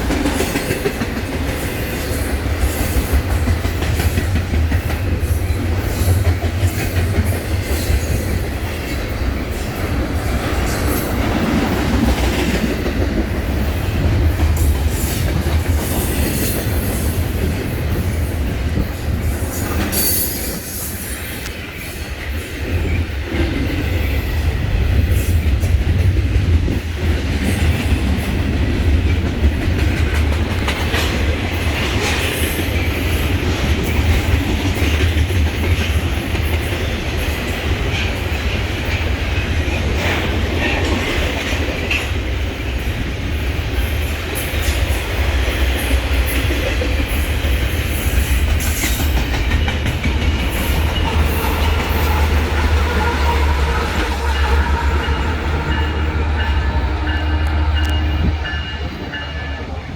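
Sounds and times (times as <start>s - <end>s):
train wheels rumbling on rails: 0.0s - 59.9s
rail clicking: 43.7s - 59.7s.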